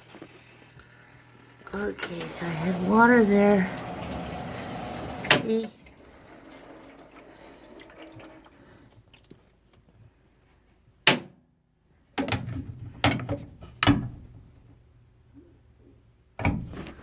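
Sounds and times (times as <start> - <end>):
washing machine humming: 0.0 - 9.7, 12.1 - 17.0
water running into washing machine: 1.7 - 9.5.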